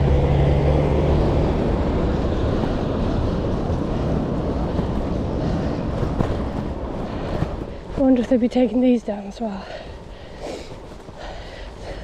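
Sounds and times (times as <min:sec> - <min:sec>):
wind on microphone: 0:00.0 - 0:08.8.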